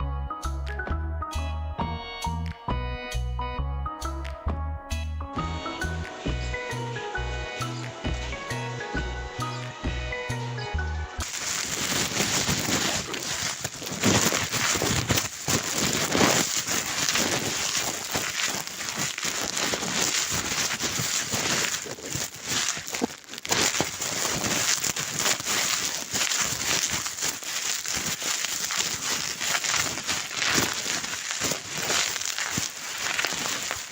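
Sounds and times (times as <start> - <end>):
dry leaves crinkling: 11.2 - 33.9.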